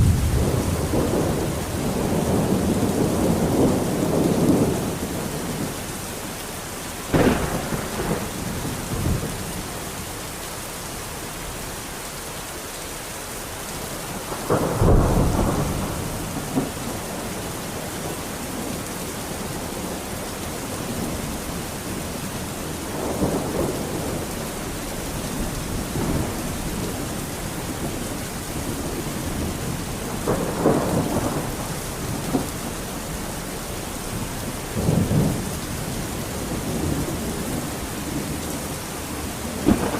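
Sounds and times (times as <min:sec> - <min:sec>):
thunderclap: 0:00.0 - 0:05.7, 0:07.1 - 0:09.7, 0:14.3 - 0:17.4, 0:22.9 - 0:32.8, 0:34.8 - 0:39.9
rumbling thunder: 0:00.0 - 0:05.9, 0:07.0 - 0:10.0, 0:14.1 - 0:39.9
heavy rain: 0:00.0 - 0:39.9.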